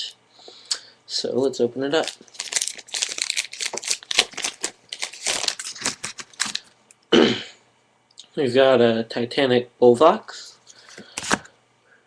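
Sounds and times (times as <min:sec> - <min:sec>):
foil wrapper crinkling: 0:02.0 - 0:06.7.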